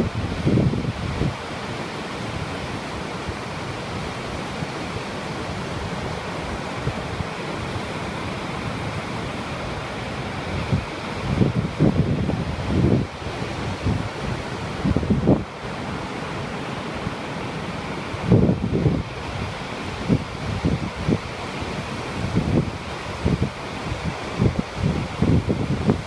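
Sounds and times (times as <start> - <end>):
wind buffeting microphone: 0.0 - 1.5, 8.6 - 16.0, 17.9 - 26.0
surf washing onto beach: 0.0 - 26.0.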